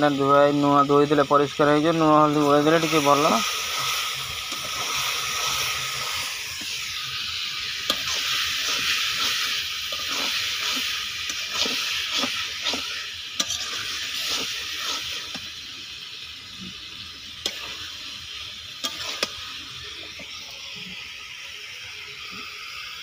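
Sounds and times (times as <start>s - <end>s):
chicken sizzling in a pan: 0.0s - 23.0s
spatula scraping a pan: 7.8s - 15.4s, 18.8s - 19.4s.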